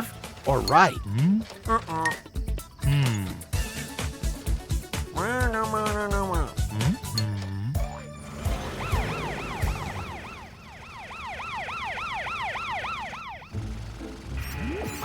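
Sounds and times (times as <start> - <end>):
cartoon ambulance siren wailing: 7.8 - 13.6.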